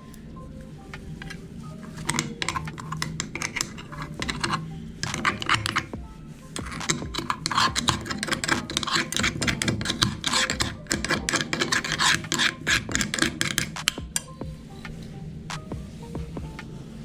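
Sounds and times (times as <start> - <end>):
meat grinder crunching ice cream: 6.6 - 14.0.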